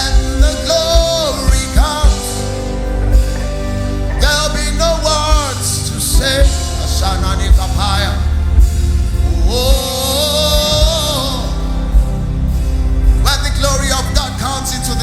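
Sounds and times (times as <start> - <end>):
person singing: 0.0 - 12.1
band with bass and beat: 0.0 - 15.0.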